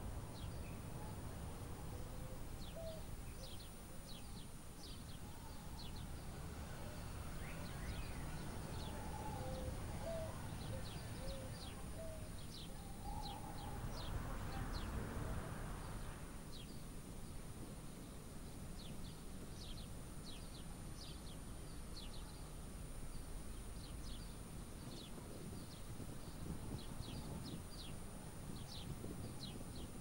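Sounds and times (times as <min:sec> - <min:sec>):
birds chirping: 0:00.0 - 0:16.8
lower whistled bird notes: 0:02.0 - 0:15.0.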